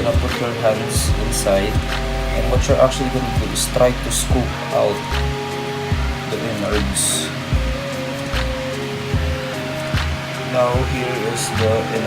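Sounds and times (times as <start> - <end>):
background music with low beat: 0.0 - 12.0.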